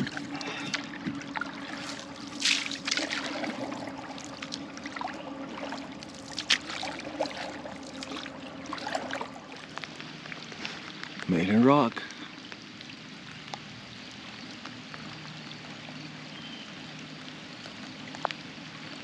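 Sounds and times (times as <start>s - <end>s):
paddle splashing water: 0.0s - 11.4s
low steady hum: 0.0s - 19.0s.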